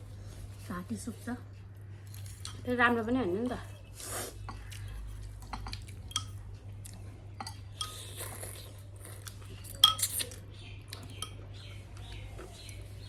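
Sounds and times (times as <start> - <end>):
metal spoon clinking on dish: 5.5 - 6.4, 9.8 - 10.4.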